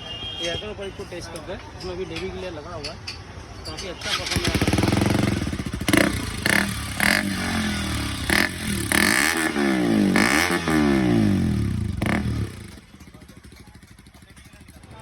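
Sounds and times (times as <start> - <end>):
motorcycle engine revving: 4.0 - 15.0.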